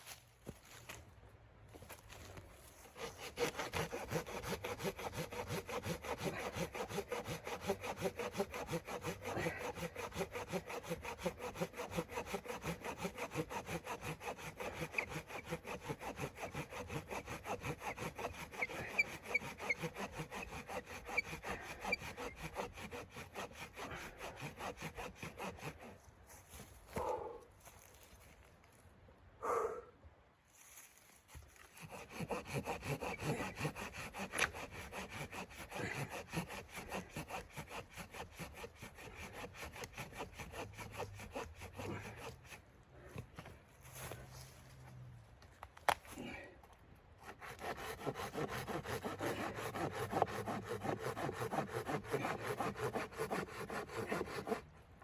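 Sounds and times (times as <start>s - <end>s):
hand saw cutting wood: 2.8s - 27.1s, 31.2s - 43.3s, 47.2s - 54.8s.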